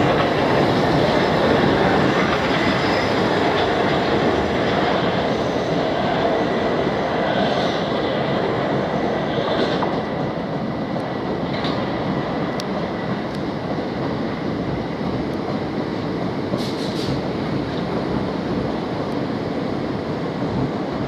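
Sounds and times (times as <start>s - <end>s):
train rumble: 0.0s - 21.0s
high wheel squeals: 1.1s - 3.7s.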